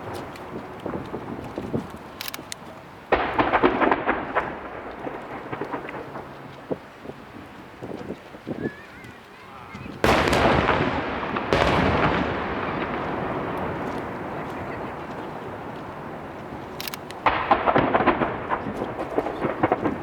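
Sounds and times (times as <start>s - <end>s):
firework bangs and crackles: 0.0s - 8.7s, 9.7s - 20.0s
firework boom echoing: 10.0s - 20.0s.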